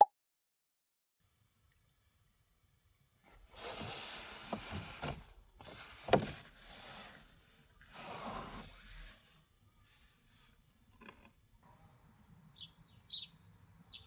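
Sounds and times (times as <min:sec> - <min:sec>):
rustling and rubbing: 0:03.3 - 0:11.3.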